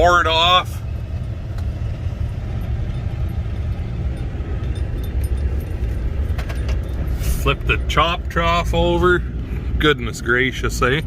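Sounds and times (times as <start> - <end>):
vehicle rumbling: 0.0 - 11.0
wind buffeting: 0.8 - 7.9.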